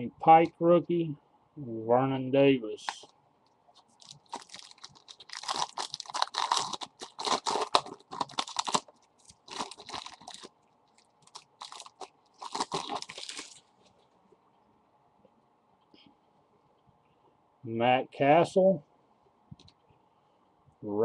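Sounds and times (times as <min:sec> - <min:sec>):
foil wrapper crinkling: 0:03.8 - 0:14.0.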